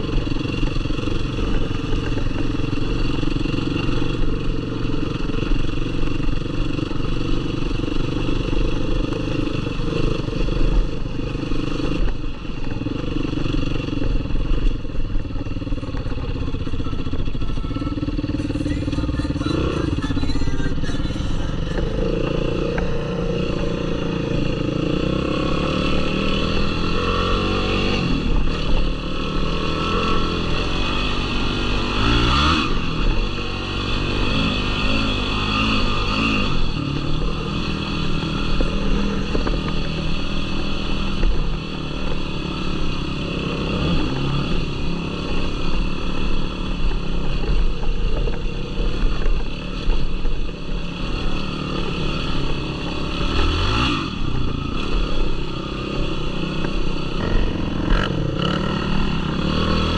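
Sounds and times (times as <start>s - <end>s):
quad engine revving under load: 16.2s - 59.9s.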